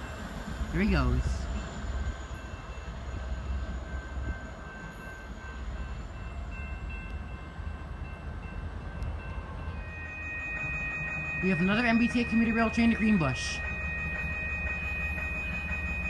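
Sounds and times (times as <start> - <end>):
train low rumble: 0.0 - 16.0
faint high tones: 9.7 - 16.0.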